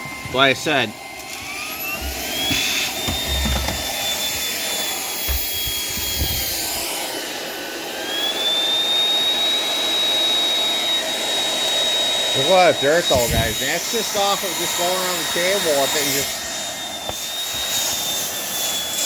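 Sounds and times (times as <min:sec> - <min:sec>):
vacuum cleaner motor whine: 0:00.0 - 0:19.0
low thumps: 0:01.9 - 0:04.6, 0:05.2 - 0:07.0.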